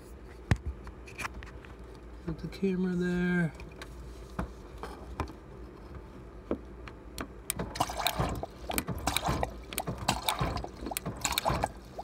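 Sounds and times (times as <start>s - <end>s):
dispenser switch clicking: 7.2s - 11.7s.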